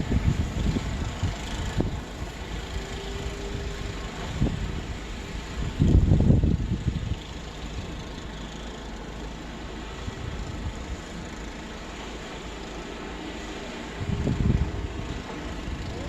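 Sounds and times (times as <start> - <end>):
wind buffeting microphone: 0.0 - 8.3, 13.9 - 16.0
storm wind: 0.0 - 8.4, 13.8 - 16.0.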